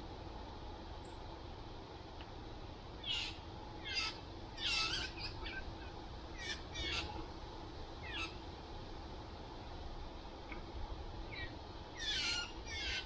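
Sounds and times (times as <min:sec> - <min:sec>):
songbird calling: 0:03.0 - 0:07.2, 0:08.0 - 0:08.4, 0:11.3 - 0:13.0.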